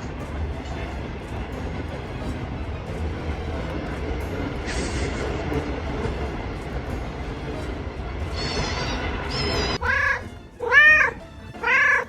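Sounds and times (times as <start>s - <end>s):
cat meowing: 8.4s - 12.0s.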